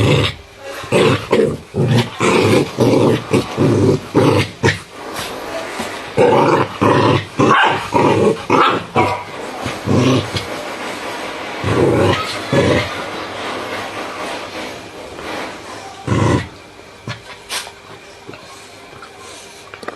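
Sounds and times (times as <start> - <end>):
dogs growling: 0.0 - 19.9
gruff dog barks: 7.5 - 7.9.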